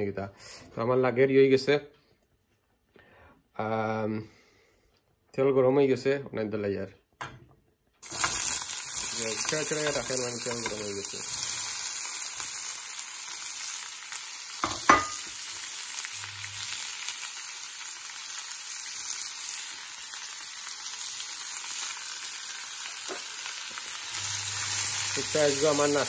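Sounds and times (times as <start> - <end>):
vegetables sizzling in oil: 8.0 - 26.0.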